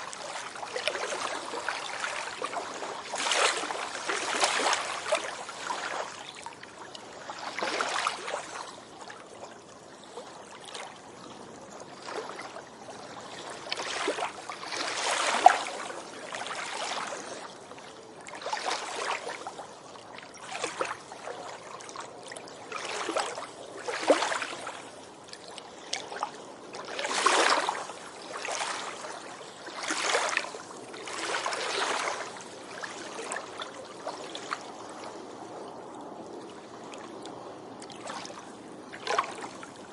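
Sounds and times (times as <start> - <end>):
waves washing onto beach: 0.0 - 39.9
sharp splash: 3.2 - 6.0.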